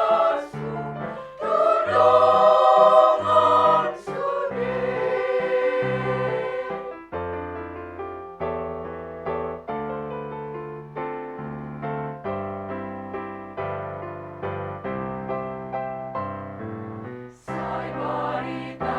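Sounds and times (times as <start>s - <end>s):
women's choir holding a chord: 0.0s - 7.1s, 17.4s - 18.9s.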